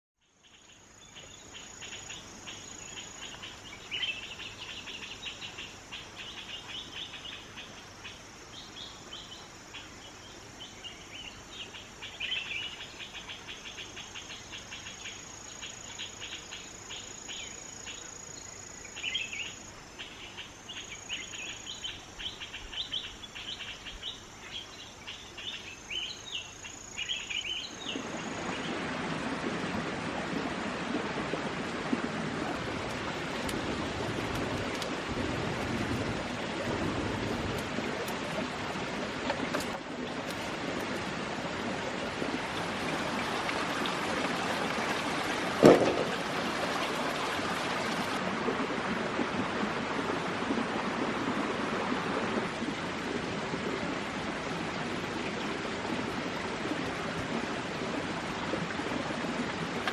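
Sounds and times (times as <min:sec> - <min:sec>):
high insect drone: 0:00.7 - 0:28.7.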